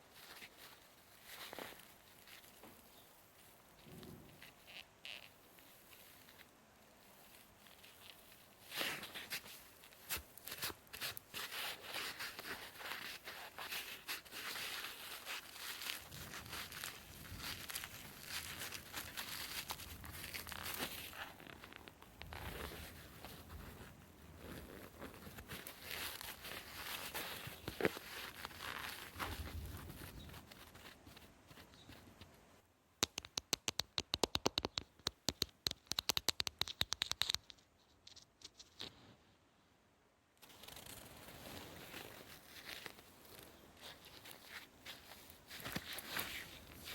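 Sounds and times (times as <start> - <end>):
crisp crackles: 0.0 - 32.4, 40.4 - 46.9
sponge rustling: 0.0 - 32.4, 40.5 - 46.9
sponge crisp clicks: 33.0 - 38.9.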